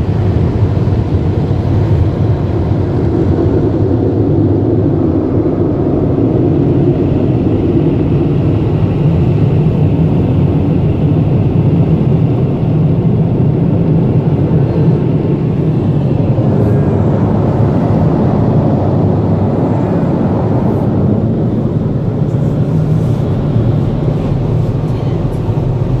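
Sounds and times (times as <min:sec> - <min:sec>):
car wash machinery rumble: 0:00.0 - 0:26.0.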